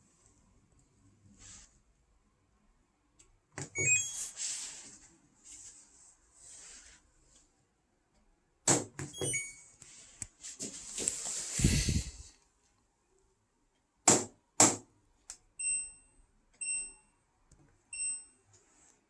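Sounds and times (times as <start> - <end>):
soft hissing: 10.5 - 12.4.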